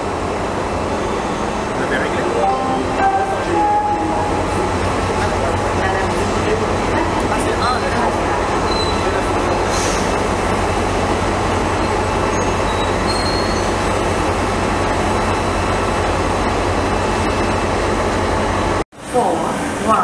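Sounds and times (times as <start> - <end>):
train rumble and rush: 0.0 - 20.0
high wheel squeals: 8.6 - 10.1, 12.2 - 13.8.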